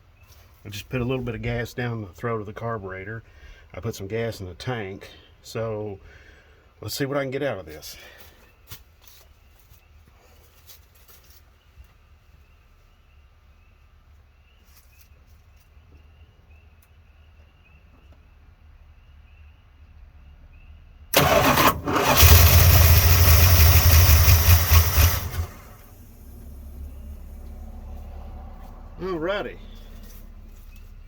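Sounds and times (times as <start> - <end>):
engine cranking and running: 21.1 - 31.0.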